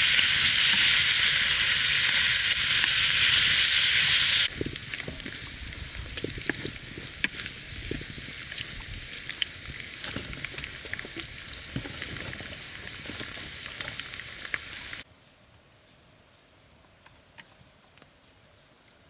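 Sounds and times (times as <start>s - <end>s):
food frying with crackles: 0.0s - 15.1s.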